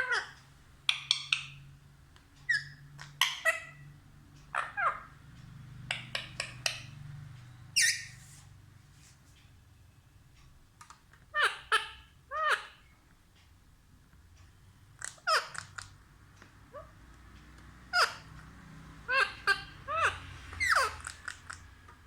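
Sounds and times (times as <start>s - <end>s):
parrot squawking and chirping: 0.0s - 1.7s, 2.4s - 5.2s, 5.8s - 7.1s, 7.8s - 8.2s, 11.3s - 12.9s, 15.0s - 16.0s, 16.7s - 17.0s, 17.8s - 21.7s.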